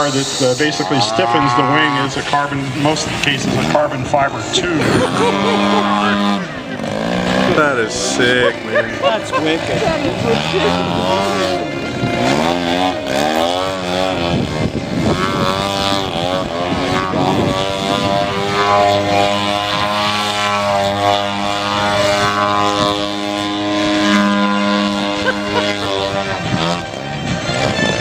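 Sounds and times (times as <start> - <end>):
model plane gasoline engine: 0.0 - 28.0.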